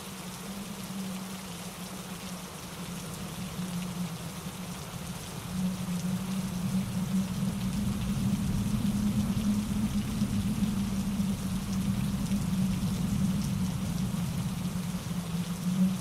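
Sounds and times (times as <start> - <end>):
rain falling: 0.0 - 16.0
wind through pine trees: 0.0 - 16.0
low rumble: 5.8 - 16.0.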